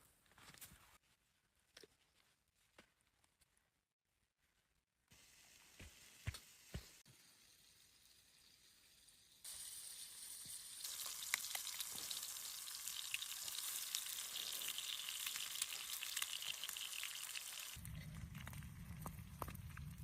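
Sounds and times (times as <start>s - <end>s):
sizzling hiss: 5.1s - 17.8s.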